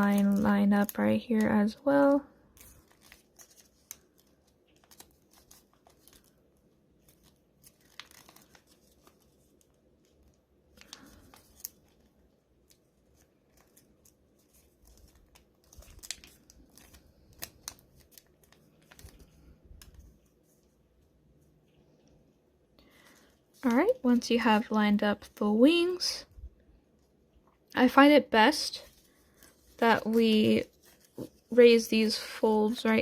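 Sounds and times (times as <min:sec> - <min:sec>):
paper folding and creasing: 0:00.0 - 0:01.6, 0:02.5 - 0:21.1, 0:28.6 - 0:33.0.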